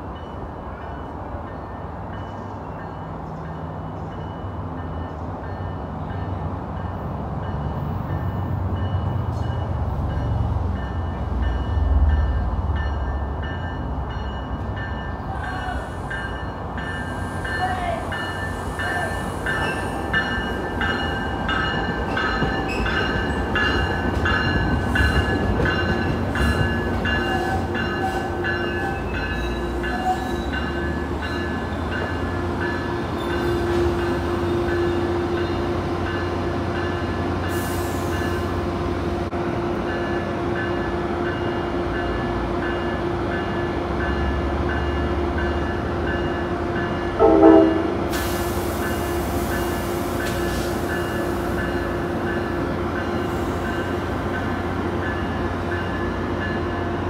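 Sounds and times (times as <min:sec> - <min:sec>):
train rolling with wheel clicks: 0:02.1 - 0:38.4, 0:39.9 - 0:57.0
train horn blast: 0:47.2 - 0:48.2.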